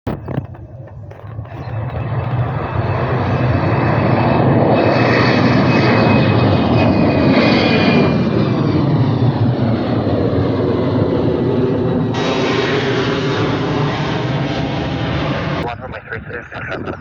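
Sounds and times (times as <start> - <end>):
airliner engines running: 0.1 - 17.0
high steady whine: 12.0 - 17.0.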